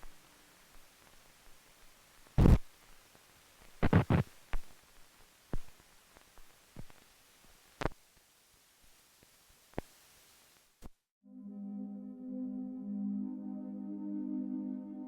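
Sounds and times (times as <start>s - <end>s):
faint hiss: 0.0s - 11.1s.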